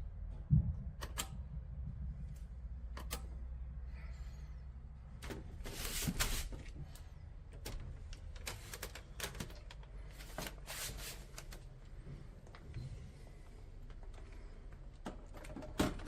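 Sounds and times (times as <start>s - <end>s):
low steady hum: 0.0s - 16.0s
rustling handling noises: 5.2s - 15.8s.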